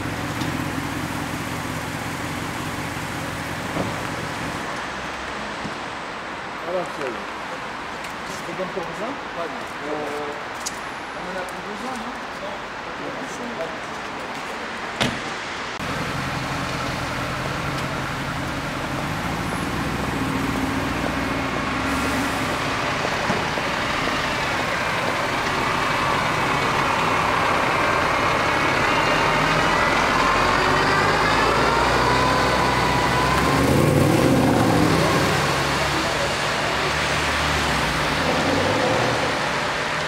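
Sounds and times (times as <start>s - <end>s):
car engine pulling away: 0.0s - 4.8s, 15.8s - 40.0s.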